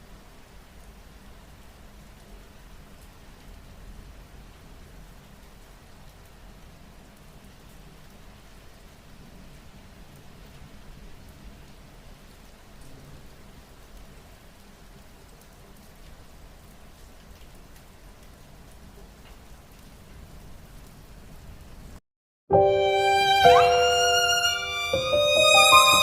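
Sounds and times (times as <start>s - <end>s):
steady rain falling: 0.0s - 22.0s, 22.7s - 26.0s.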